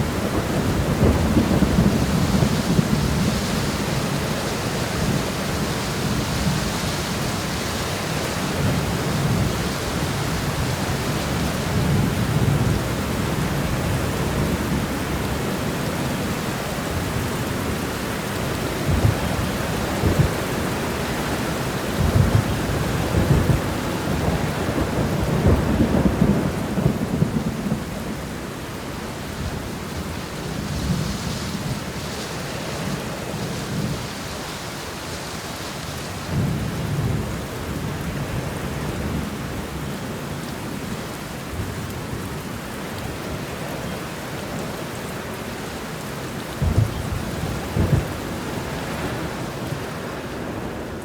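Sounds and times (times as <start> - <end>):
rolling thunder: 0.0 - 32.0, 46.4 - 51.0
steady rain: 0.0 - 51.0.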